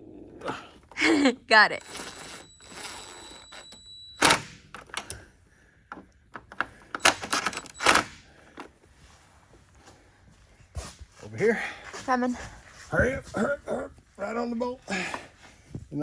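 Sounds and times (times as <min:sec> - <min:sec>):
clicks of tools and parts: 0:05.9 - 0:08.7.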